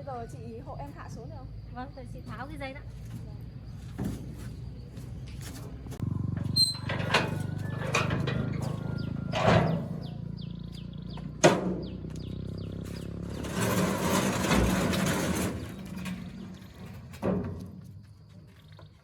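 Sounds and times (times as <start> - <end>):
low engine hum: 0.0 - 17.1
knocks and clattering: 6.3 - 10.4, 11.1 - 12.1, 12.8 - 18.0.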